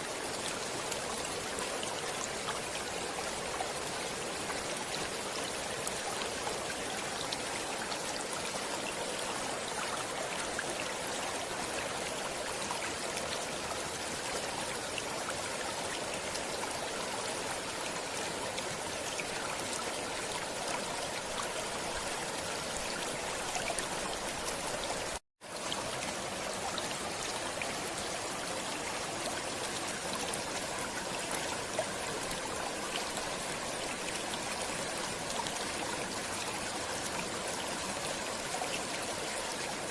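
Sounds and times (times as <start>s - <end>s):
stream water running: 0.0s - 39.9s.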